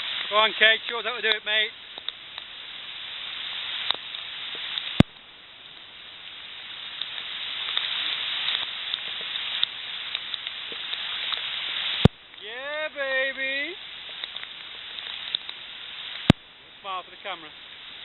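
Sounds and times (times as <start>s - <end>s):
rain hissing on foliage: 0.0s - 18.0s
faint dripping ticks: 0.1s - 2.5s, 6.9s - 12.5s, 13.5s - 16.5s.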